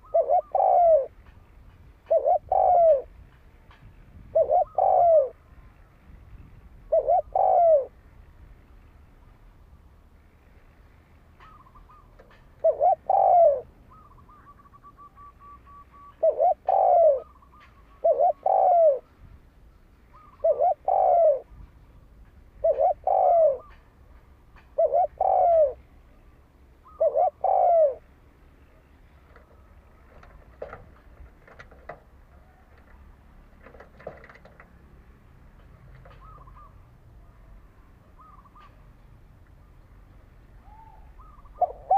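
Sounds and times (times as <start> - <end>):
dove cooing: 0.0 - 1.4, 2.0 - 3.3, 4.2 - 5.6, 6.8 - 8.0, 11.4 - 19.2, 20.1 - 21.7, 22.5 - 23.9, 24.6 - 25.9, 26.8 - 28.1, 36.0 - 36.9, 38.1 - 38.9, 40.6 - 41.9.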